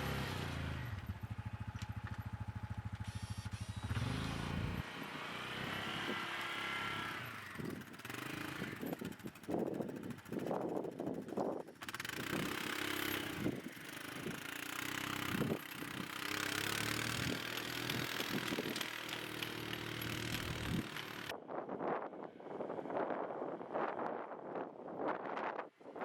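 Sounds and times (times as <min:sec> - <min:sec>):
atv engine running: 0:00.0 - 0:21.3
wind on microphone: 0:15.2 - 0:16.1, 0:20.5 - 0:26.0.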